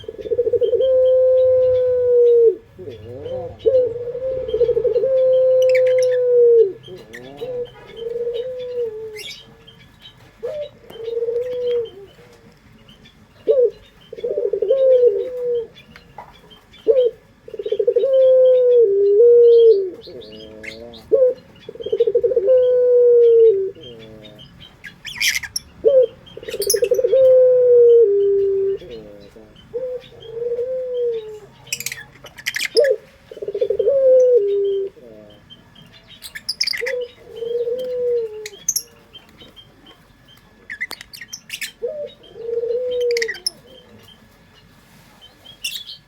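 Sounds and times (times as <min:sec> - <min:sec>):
dove cooing: 0:00.0 - 0:44.5
small birds chirping: 0:00.0 - 0:46.0.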